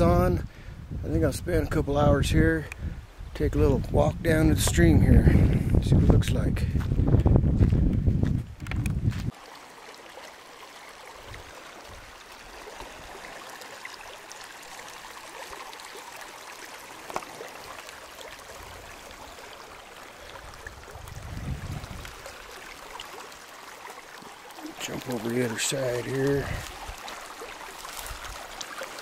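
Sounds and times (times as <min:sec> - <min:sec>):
stream running over rocks: 0:07.2 - 0:29.0.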